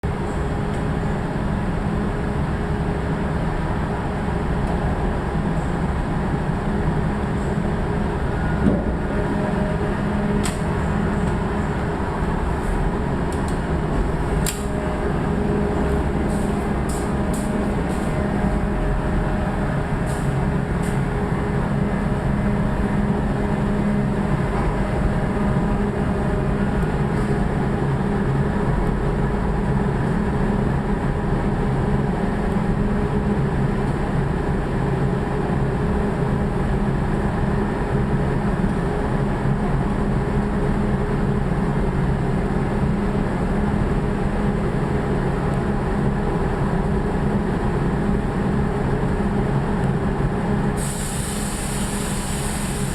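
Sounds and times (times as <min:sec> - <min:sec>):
low drone: 0:00.0 - 0:40.4
factory machinery hum and rumble: 0:00.0 - 0:52.9.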